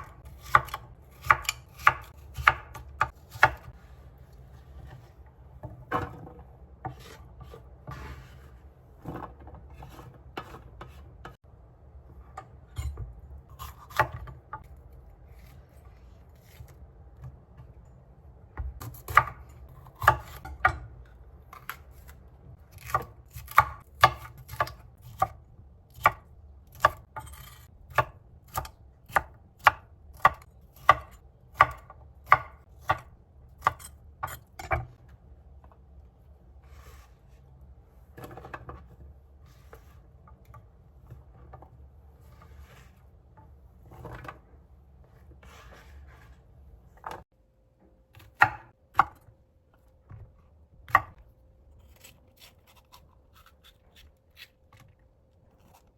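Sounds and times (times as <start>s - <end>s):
knife chopping on cutting board: 0.0s - 3.7s, 18.6s - 20.9s, 22.7s - 34.9s.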